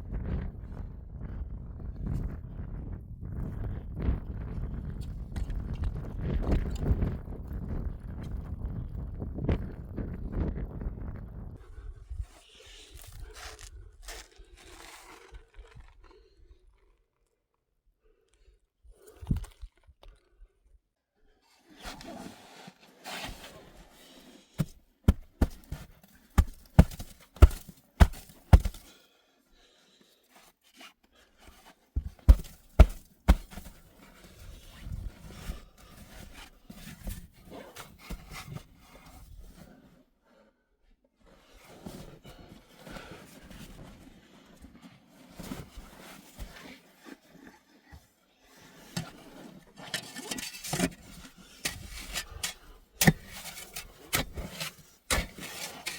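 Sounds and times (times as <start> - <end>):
rustling and crunching: 24.6 - 29.0, 31.6 - 38.5, 49.0 - 55.9.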